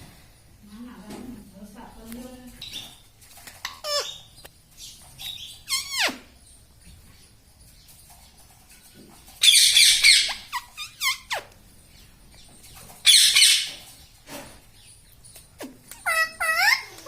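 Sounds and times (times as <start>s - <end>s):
parrot screeching: 5.7s - 6.3s, 9.4s - 11.4s, 15.9s - 17.0s.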